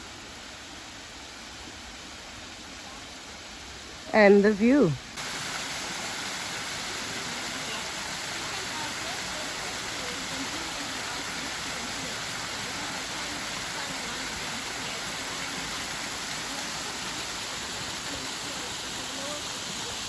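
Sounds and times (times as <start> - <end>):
waterfall rushing water: 0.0 - 20.0.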